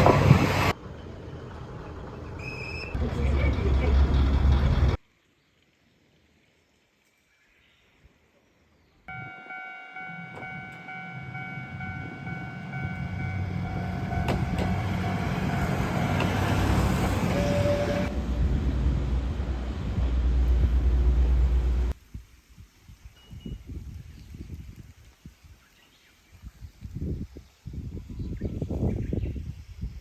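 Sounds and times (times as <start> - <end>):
diesel railcar rumble: 0.0 - 5.0, 9.1 - 22.0
steady high tone: 9.1 - 18.1.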